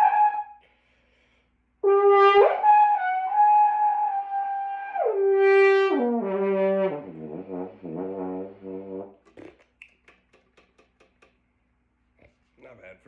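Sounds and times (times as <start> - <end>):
brass instrument notes: 0.0 - 0.6, 1.8 - 9.5.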